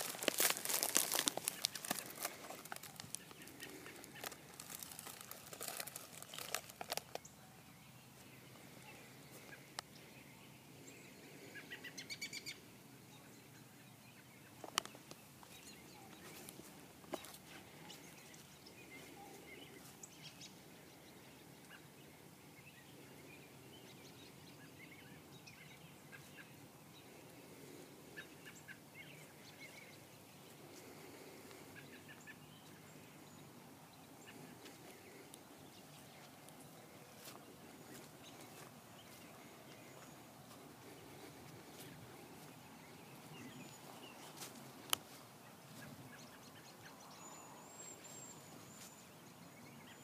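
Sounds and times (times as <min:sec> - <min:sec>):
faint bird chirping: 0:00.0 - 0:50.0.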